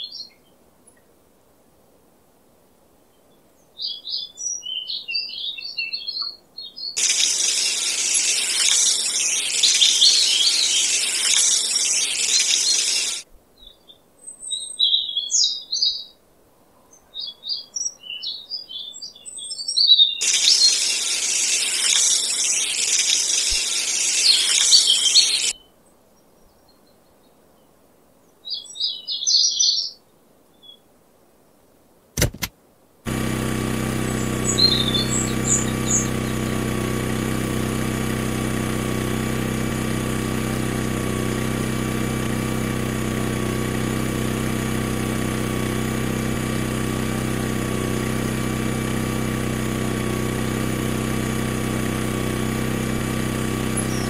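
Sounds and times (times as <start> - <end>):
short bird chirps: 20.2 - 25.6.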